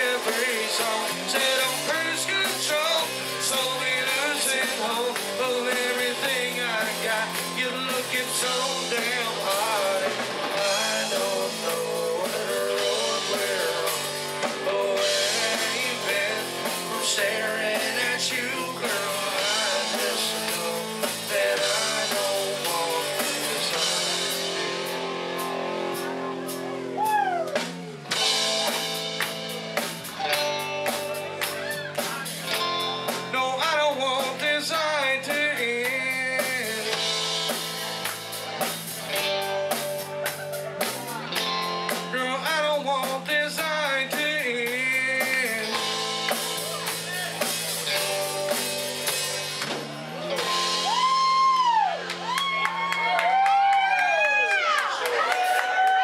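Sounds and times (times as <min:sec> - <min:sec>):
country-rock band playing: 0:00.0 - 0:56.0
drum kit: 0:00.0 - 0:56.0
electric guitar chords: 0:00.0 - 0:56.0
loud whoops: 0:26.8 - 0:28.0, 0:31.5 - 0:32.3, 0:50.2 - 0:56.0.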